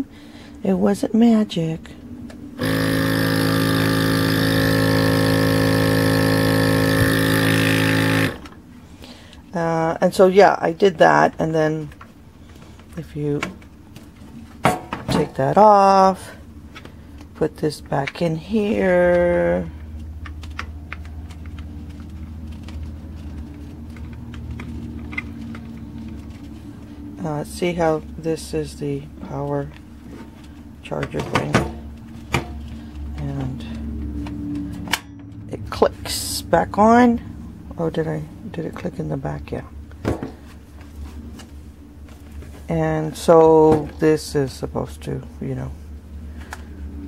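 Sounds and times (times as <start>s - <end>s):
nebulizer compressor humming: 2.0s - 9.6s
plastic parts clicking: 20.0s - 26.4s.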